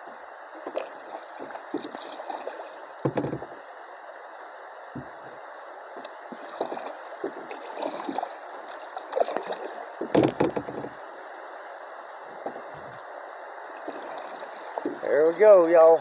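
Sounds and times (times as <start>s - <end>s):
paddle splashes: 0.5s - 3.6s, 6.0s - 11.0s, 13.7s - 16.0s.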